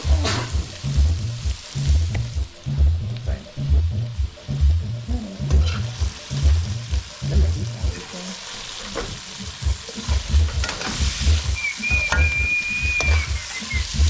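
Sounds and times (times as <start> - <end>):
food sizzling in a wok: 0.0 - 14.0
metal spoon scraping a pan: 9.9 - 11.2.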